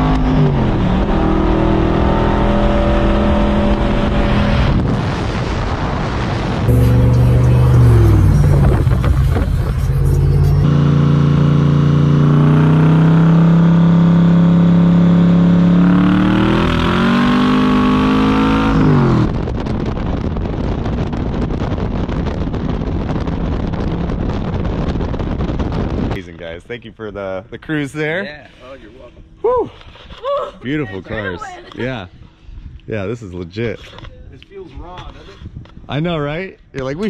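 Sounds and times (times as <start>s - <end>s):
wind noise: 0.0s - 11.6s, 16.3s - 27.0s, 29.1s - 37.0s
car engine accelerating: 0.0s - 19.8s.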